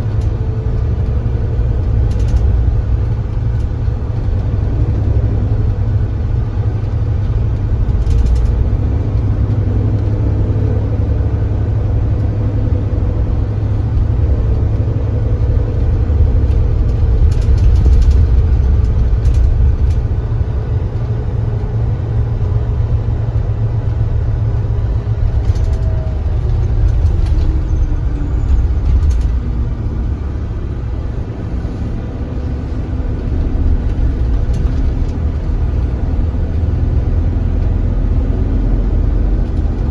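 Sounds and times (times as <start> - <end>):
coach engine rumbling: 0.0 - 39.9
short clicks and rattles: 2.1 - 2.6, 25.1 - 29.6.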